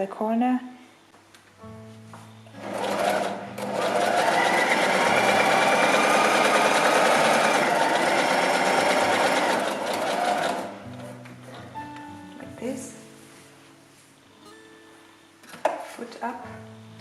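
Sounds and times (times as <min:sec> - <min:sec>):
sewing machine stitching: 0:02.6 - 0:11.2.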